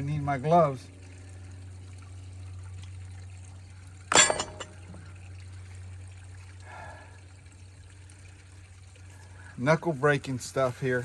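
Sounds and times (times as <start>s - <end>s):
steady low hum: 0.0s - 11.0s
hand tool clanking on steel: 4.1s - 4.8s.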